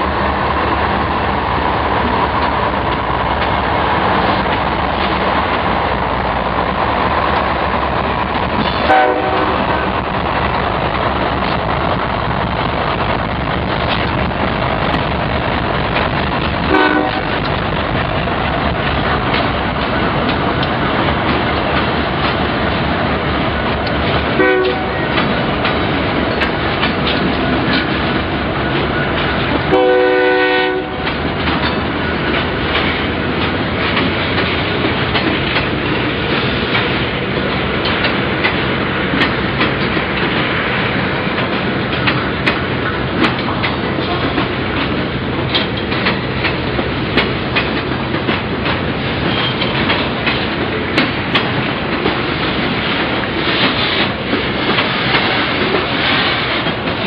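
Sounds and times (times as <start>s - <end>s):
train wheels rumbling on rail: 0.0s - 57.0s
locomotive horn: 8.8s - 9.9s, 16.7s - 17.4s, 24.4s - 25.2s, 29.7s - 31.2s
clicks over rail joints: 18.7s - 22.4s, 41.3s - 57.0s.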